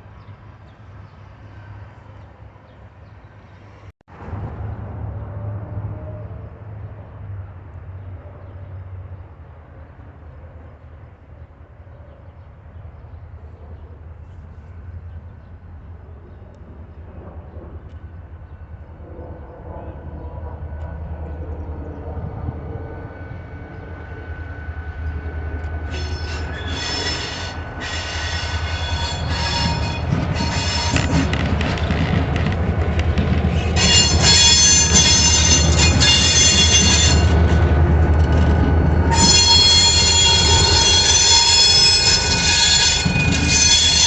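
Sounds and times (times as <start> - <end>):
diesel train rumble: 0.0 - 44.0
train wheel squeal: 22.7 - 32.5, 33.4 - 44.0.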